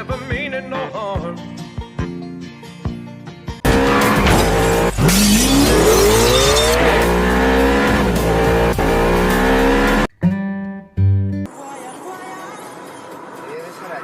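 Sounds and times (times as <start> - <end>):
car engine revving hard: 3.6 - 10.1.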